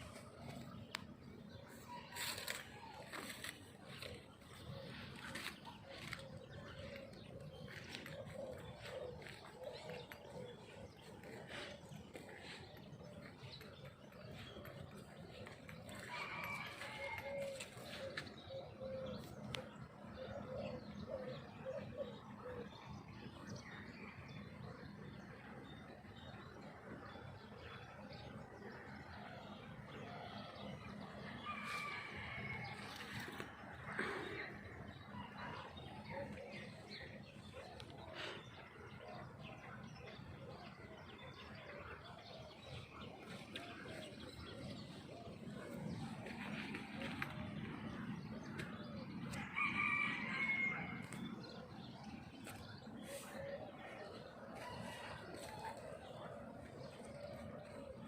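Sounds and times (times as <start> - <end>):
dove cooing: 3.8 - 22.7.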